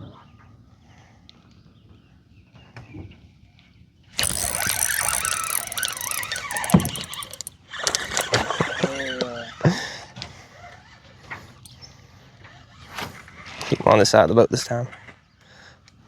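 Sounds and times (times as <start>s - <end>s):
fishing reel drag buzzing: 4.2s - 8.5s.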